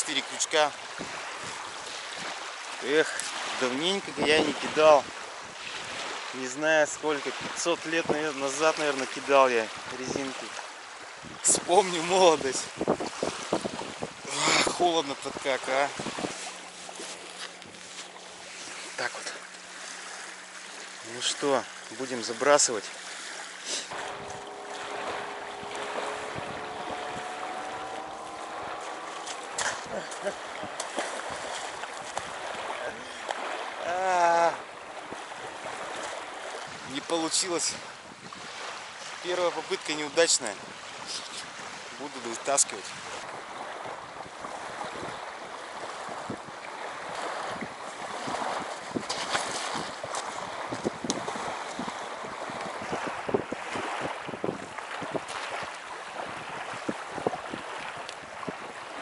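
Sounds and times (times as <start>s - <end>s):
water lapping at shore: 0.0s - 59.0s
wind buffeting microphone: 0.8s - 2.5s, 7.3s - 8.7s, 9.7s - 17.0s, 23.9s - 39.2s, 42.8s - 59.0s.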